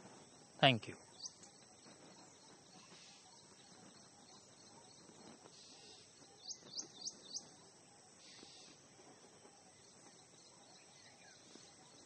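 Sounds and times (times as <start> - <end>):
bird chirping: 0.0 - 12.0
faint background hiss: 0.0 - 12.0.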